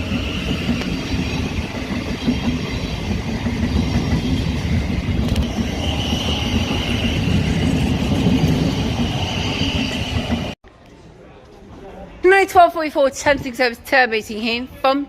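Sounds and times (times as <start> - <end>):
train wheels rumbling on rail: 0.0 - 10.6.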